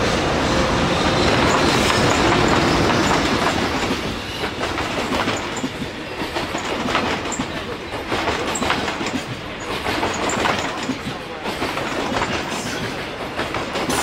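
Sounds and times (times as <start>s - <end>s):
train wheels rumbling on rail: 0.0s - 14.0s
wagon wheels clattering: 4.6s - 14.0s.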